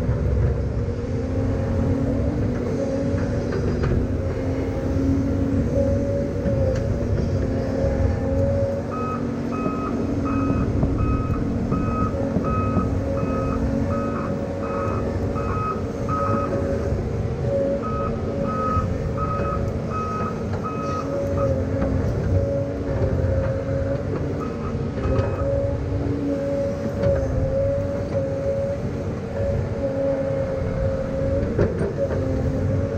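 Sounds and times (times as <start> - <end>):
machine engine running: 0.0 - 27.8
backup alarm beeping: 8.9 - 16.6, 17.8 - 21.1.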